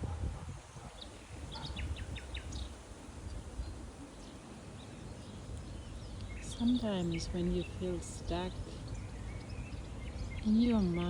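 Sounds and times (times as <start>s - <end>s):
small bird chirping: 0.8s - 11.0s
outdoor background rumble: 5.2s - 11.0s.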